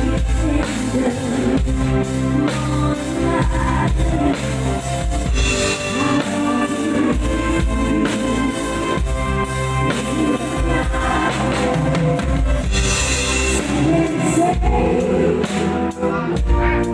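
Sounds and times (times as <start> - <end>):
live band music: 0.0 - 16.9.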